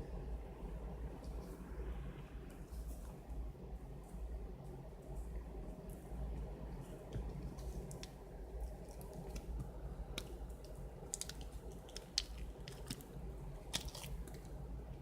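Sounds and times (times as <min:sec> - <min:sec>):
foam slime crackling and squelching: 0:07.4 - 0:14.7.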